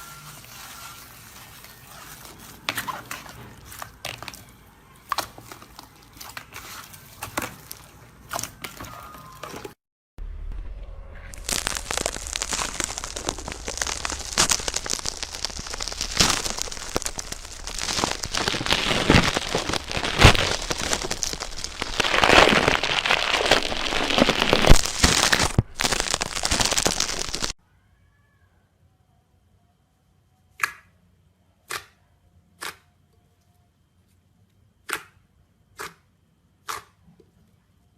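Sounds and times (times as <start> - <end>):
slime squelching crackles and pops: 11.3 - 27.6.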